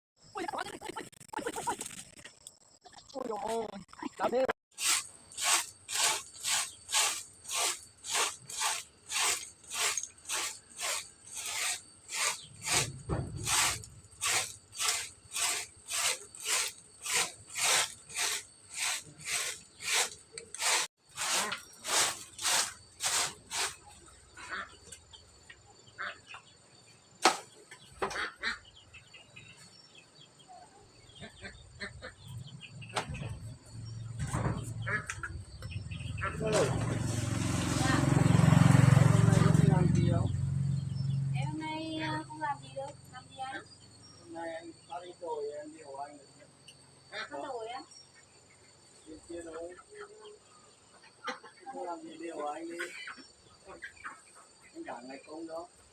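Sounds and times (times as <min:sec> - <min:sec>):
rhythmic scraping strokes: 0:04.7 - 0:23.9.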